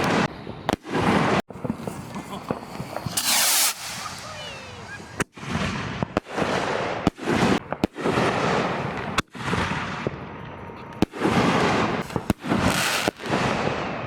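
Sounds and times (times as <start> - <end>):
fireworks bangs: 0.0 - 14.0
hiss after firework bursts: 0.9 - 5.6, 11.4 - 13.4.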